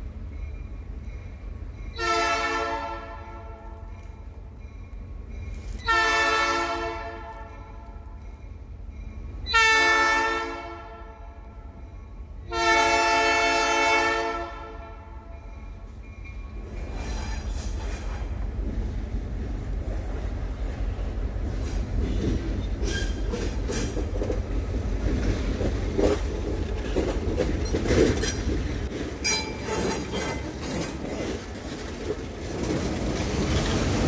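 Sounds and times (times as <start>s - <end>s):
locomotive air horn blasts: 2.0s - 3.8s, 5.8s - 7.9s, 9.5s - 11.7s, 12.5s - 15.4s.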